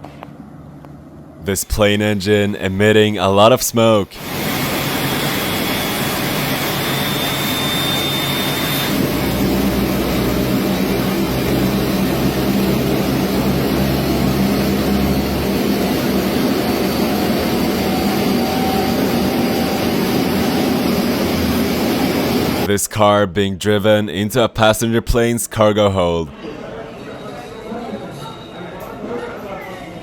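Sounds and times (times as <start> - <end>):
aircraft engine running: 4.2 - 22.7.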